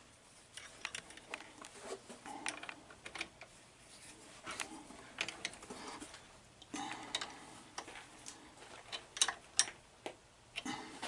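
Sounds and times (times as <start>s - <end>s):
tools and metal parts clicking: 8.9s - 9.8s.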